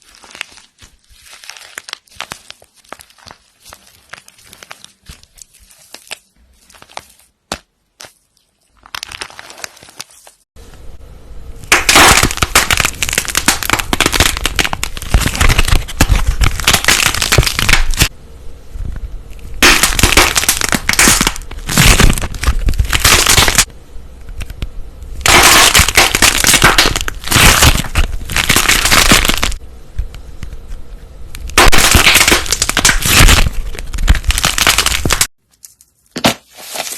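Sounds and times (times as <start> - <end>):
close crackling and popping: 0.0 - 10.5, 11.7 - 18.2, 18.8 - 36.9.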